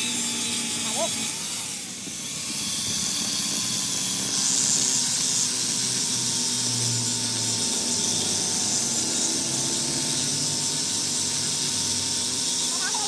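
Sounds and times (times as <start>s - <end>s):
power tool running: 0.0s - 13.0s.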